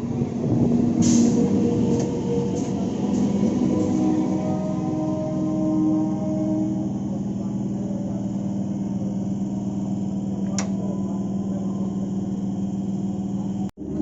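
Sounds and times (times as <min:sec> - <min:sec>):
train electrical hum: 0:00.0 - 0:13.8.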